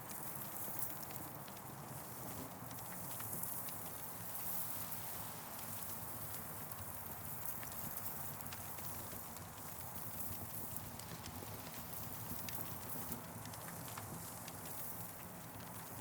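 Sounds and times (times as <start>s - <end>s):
campfire crackling and popping: 5.6s - 16.0s.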